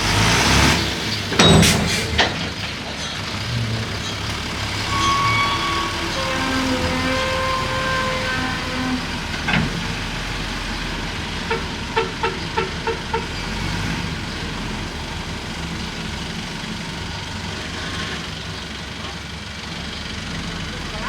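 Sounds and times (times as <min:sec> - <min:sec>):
bulldozer diesel engine running: 0:00.0 - 0:21.0.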